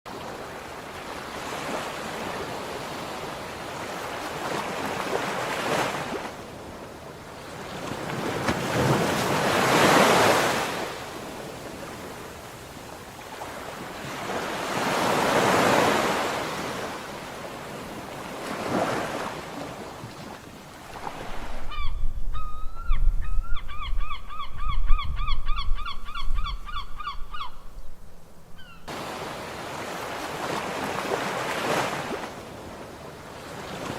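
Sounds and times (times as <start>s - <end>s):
sea waves washing onto shore: 0.1s - 21.7s, 28.9s - 33.9s
bird repeated rapid calls: 21.7s - 27.6s.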